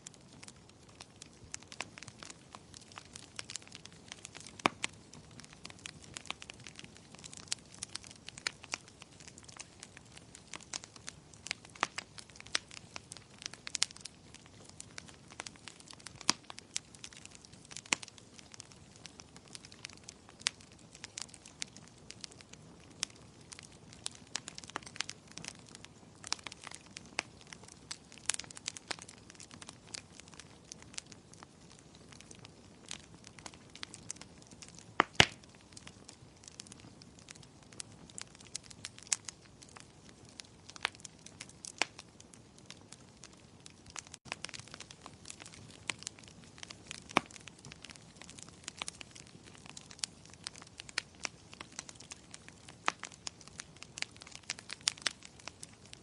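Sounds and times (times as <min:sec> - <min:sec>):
faint steady hiss: 0:00.0 - 0:51.6
wood fire crackling: 0:00.0 - 0:56.0.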